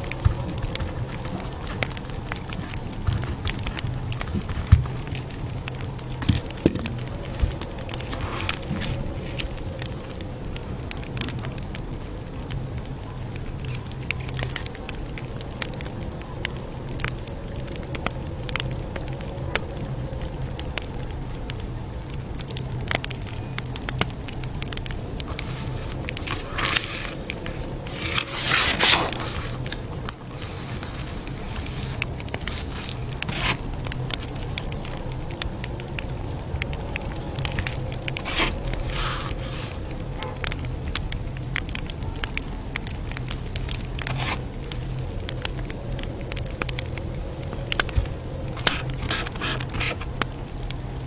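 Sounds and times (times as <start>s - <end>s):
campfire crackling and popping: 0.0s - 51.0s
loud rustling bursts: 25.2s - 33.8s, 38.2s - 40.0s.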